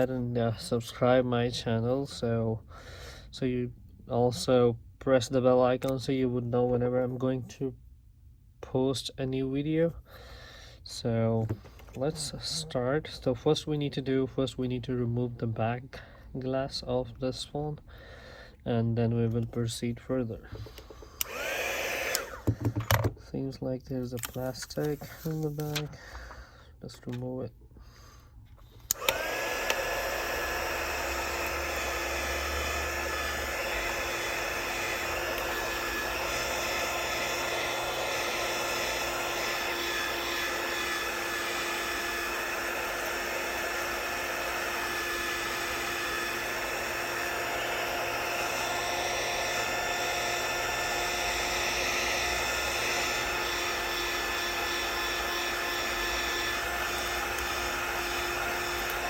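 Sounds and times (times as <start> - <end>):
hot-air gun fan rush and whine: 20.1 - 23.2, 28.8 - 59.0.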